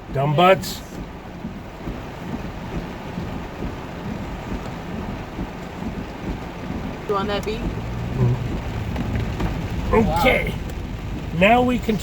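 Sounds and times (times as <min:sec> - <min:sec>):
heavy rain on car: 0:00.0 - 0:12.0
low rumble: 0:03.6 - 0:12.0.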